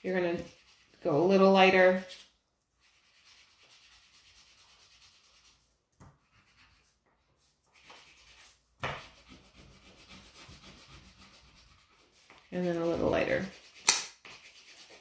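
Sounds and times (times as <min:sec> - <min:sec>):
crayon scratching on paper: 0:00.0 - 0:02.2, 0:02.8 - 0:07.0, 0:07.7 - 0:15.0.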